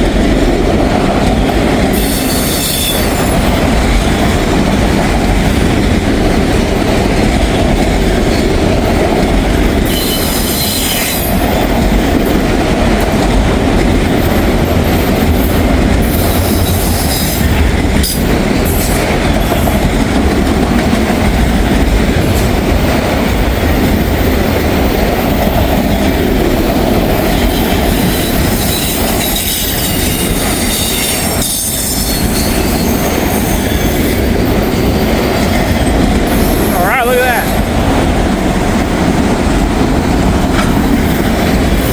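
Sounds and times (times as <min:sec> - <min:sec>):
train wheels clattering on rails: 0:00.0 - 0:41.9
high wheel squeals: 0:09.8 - 0:11.4.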